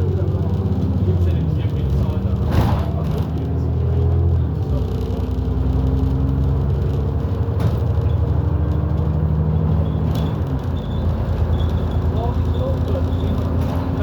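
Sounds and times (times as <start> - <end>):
bus engine running: 0.0 - 14.0
road noise: 0.0 - 14.0.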